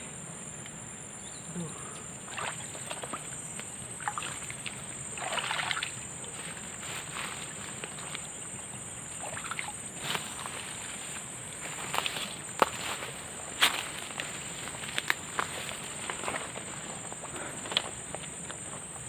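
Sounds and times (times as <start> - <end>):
high-pitched insect drone: 0.0 - 19.0
water sloshing: 2.2 - 12.8.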